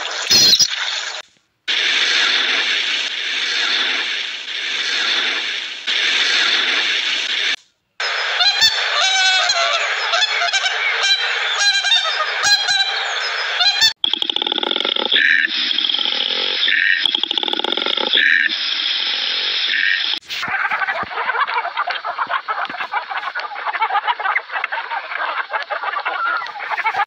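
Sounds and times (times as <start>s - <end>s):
rushing water: 0.0s - 7.6s
waterfowl honking: 8.4s - 13.9s.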